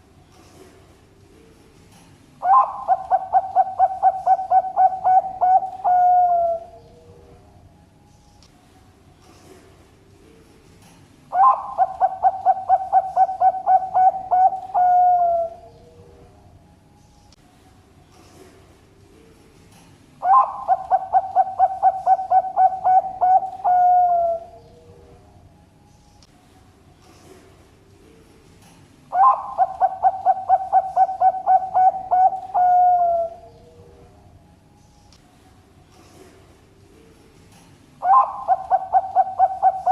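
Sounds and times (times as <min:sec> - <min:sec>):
dove cooing song: 0:02.4 - 0:07.4, 0:11.3 - 0:16.3, 0:20.2 - 0:25.2, 0:29.1 - 0:34.2, 0:38.0 - 0:39.9.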